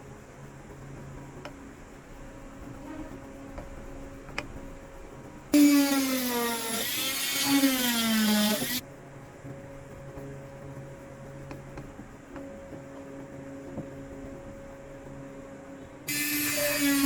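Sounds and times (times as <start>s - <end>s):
electric drill motor whining: 5.6s - 8.8s, 16.1s - 17.0s.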